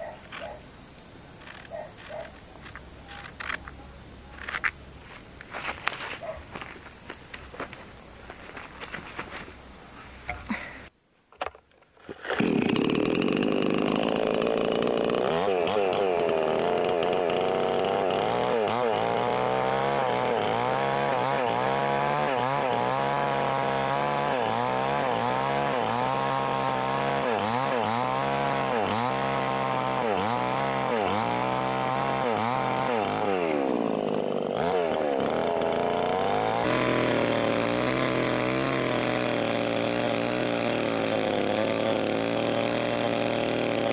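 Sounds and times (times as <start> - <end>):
small engine running loudly: 12.5 - 43.9.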